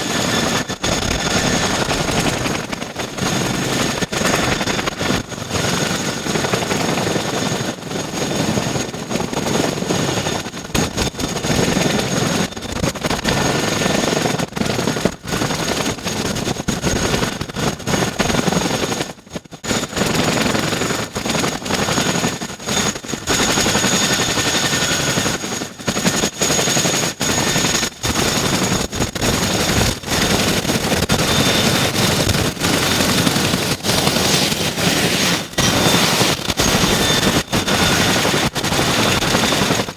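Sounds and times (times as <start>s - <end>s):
helicopter rotor roar: 0.0s - 39.9s
high turbine whine: 28.5s - 39.9s.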